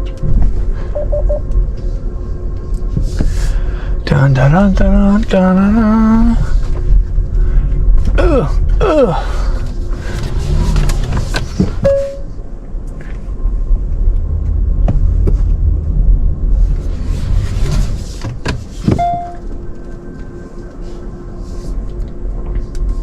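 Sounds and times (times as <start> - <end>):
car engine rumbling: 0.0 - 23.0
short beeps: 0.9 - 1.4, 11.8 - 12.4, 19.0 - 19.4.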